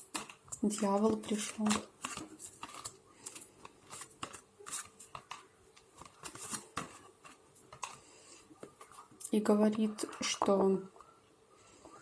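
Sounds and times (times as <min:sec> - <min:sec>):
cards snapping and rustling: 0:00.1 - 0:08.0.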